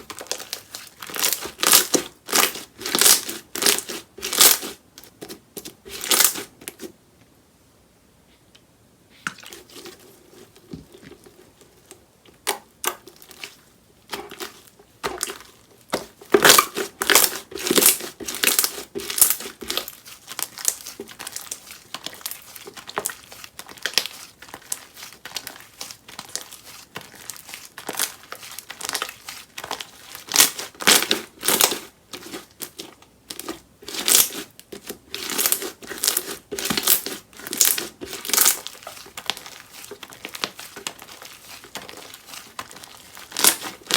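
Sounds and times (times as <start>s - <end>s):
slime crackling and popping: 0.0s - 4.7s, 14.1s - 43.9s.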